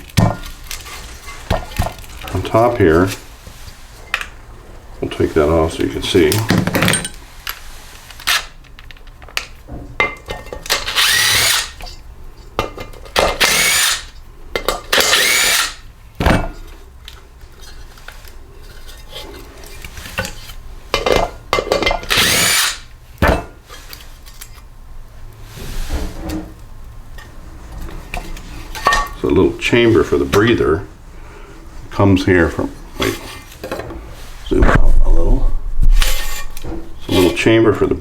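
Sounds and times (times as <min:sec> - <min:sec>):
power driver motor whirring: 0:10.9 - 0:11.8.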